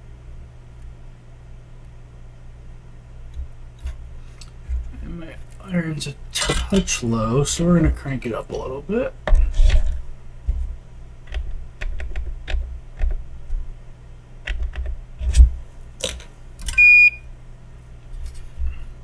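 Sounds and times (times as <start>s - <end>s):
faint low hum: 0.0s - 19.0s
short high beep: 16.8s - 17.2s.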